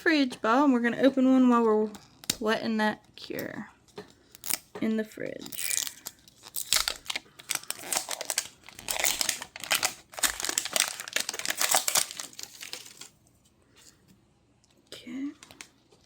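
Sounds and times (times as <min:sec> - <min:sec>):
plastic wrapper crinkling: 0:05.4 - 0:13.2.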